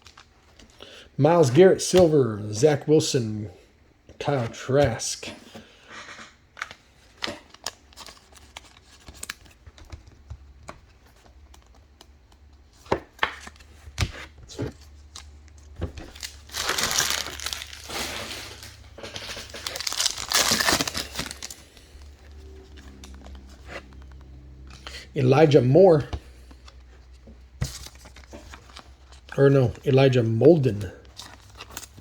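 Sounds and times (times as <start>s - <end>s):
wrapper crinkling and tearing: 16.0s - 24.0s, 31.2s - 32.0s.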